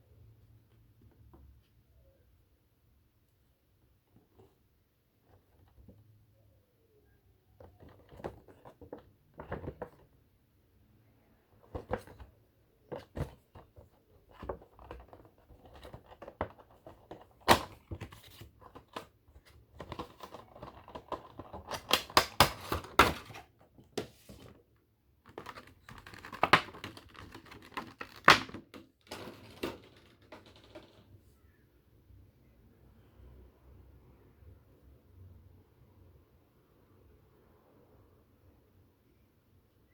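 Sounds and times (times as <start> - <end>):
plastic packaging crinkling: 25.3 - 30.4.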